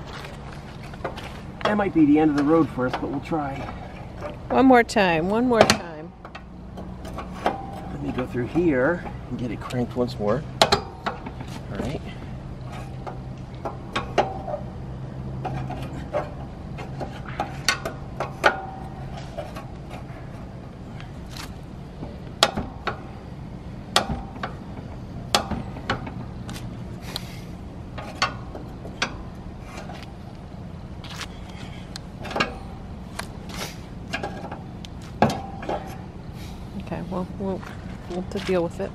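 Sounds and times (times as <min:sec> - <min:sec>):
low steady hum: 0:00.0 - 0:38.9
metallic clicks and knocks: 0:23.9 - 0:26.8, 0:27.9 - 0:30.1.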